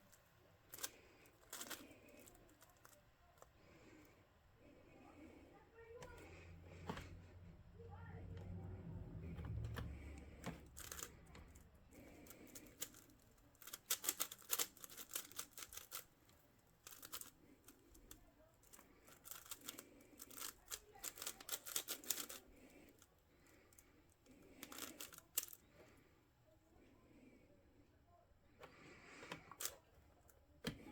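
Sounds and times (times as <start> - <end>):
puzzle cube clicking turns: 0.7 - 3.0, 9.5 - 23.1, 24.5 - 25.6, 29.0 - 29.8.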